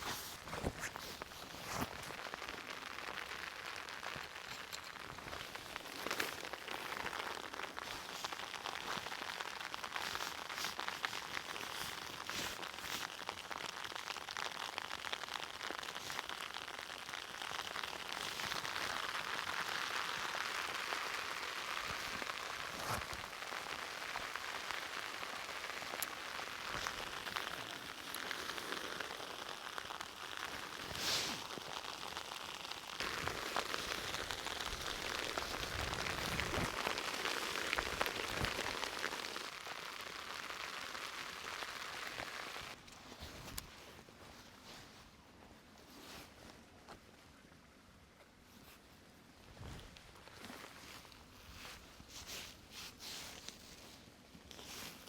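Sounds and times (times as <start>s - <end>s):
steady rainfall: 0.8s - 42.8s.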